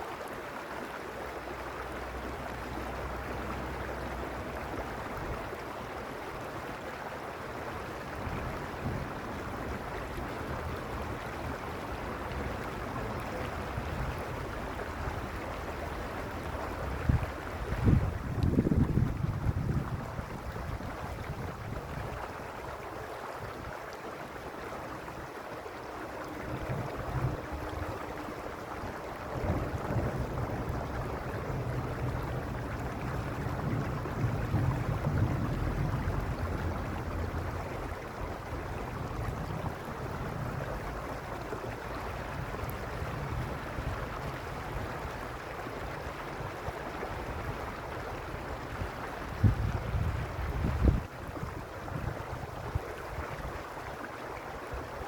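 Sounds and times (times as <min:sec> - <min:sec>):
stream water running: 0:00.0 - 0:55.0
wind buffeting microphone: 0:08.0 - 0:22.7, 0:26.2 - 0:55.0.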